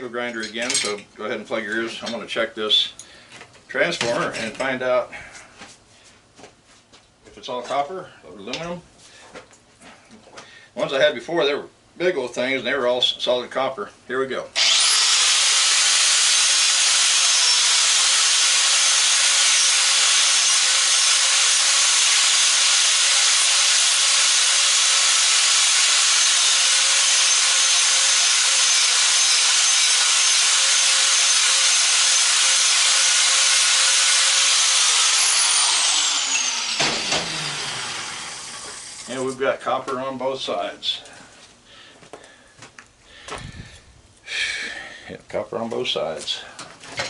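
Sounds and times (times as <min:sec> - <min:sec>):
motor winding down: 0:14.6 - 0:39.1
angle grinder cutting metal: 0:14.6 - 0:39.4.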